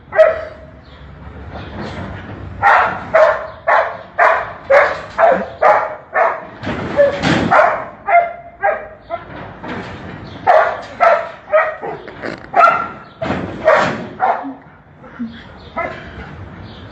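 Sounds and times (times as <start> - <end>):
dog barking: 0.1 - 0.7, 2.6 - 9.3, 10.4 - 14.6, 15.7 - 16.1.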